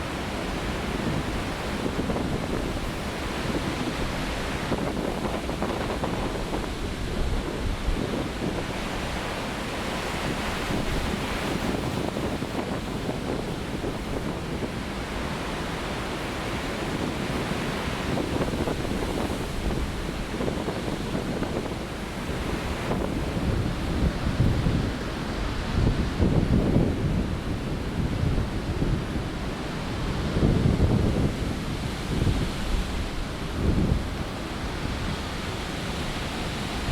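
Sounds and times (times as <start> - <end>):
storm surf breaking: 0.0 - 36.9
wind buffeting microphone: 0.0 - 36.9.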